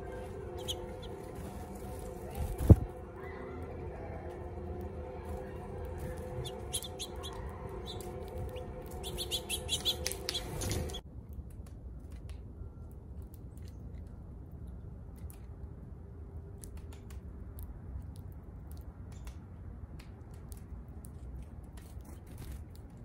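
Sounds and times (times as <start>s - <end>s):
small birds chirping: 0.0s - 3.7s, 5.3s - 11.0s
steady low hum: 0.0s - 20.0s.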